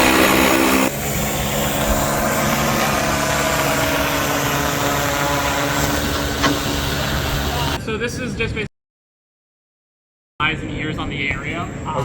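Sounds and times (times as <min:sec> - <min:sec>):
drone propellers humming: 0:00.0 - 0:07.8.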